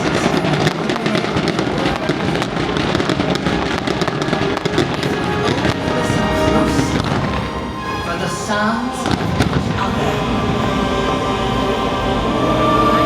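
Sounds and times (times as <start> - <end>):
fireworks popping and crackling: 0.0 - 8.2
loud show music: 2.6 - 13.0.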